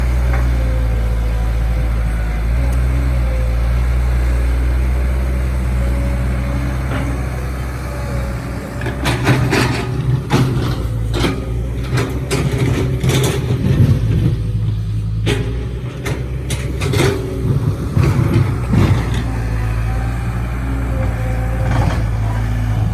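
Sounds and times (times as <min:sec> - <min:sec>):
diesel engine running: 0:00.0 - 0:22.9
sharp clanks and knocks: 0:08.8 - 0:19.5.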